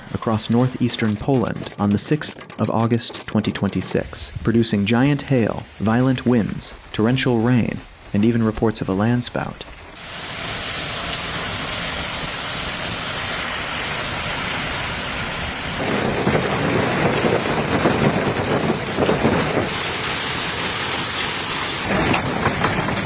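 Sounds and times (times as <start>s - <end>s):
sharp pattering impacts: 0.0s - 10.0s
heavy rain pouring: 0.0s - 23.0s.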